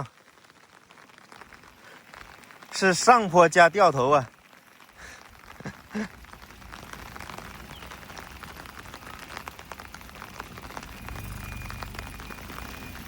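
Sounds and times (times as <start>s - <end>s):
rain pattering: 0.0s - 13.0s
car engine rumble: 5.5s - 13.0s.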